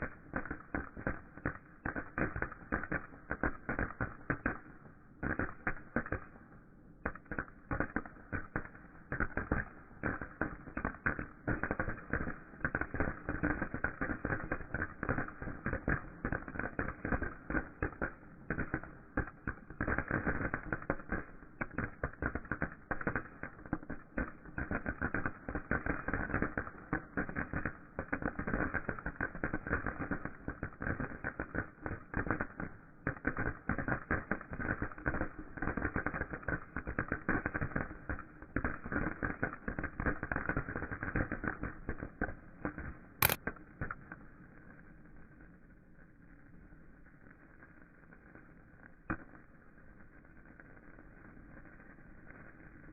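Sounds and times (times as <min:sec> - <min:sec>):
firework crackling: 0:00.0 - 0:52.9.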